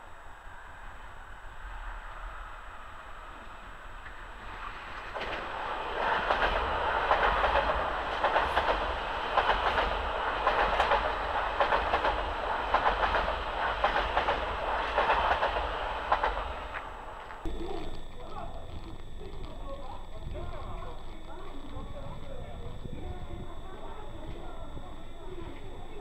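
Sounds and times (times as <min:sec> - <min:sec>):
train rushing past: 0:00.0 - 0:17.4.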